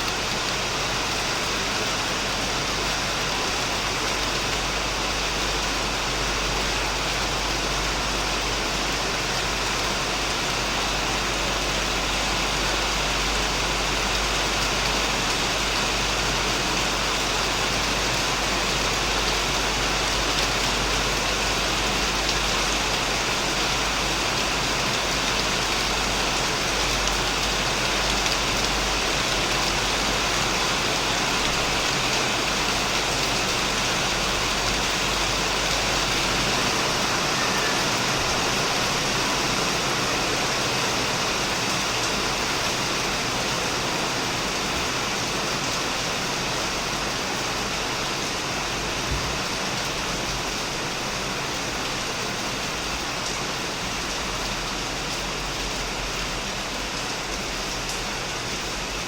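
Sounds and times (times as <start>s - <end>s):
heavy rain on a shed roof: 0.0s - 59.0s.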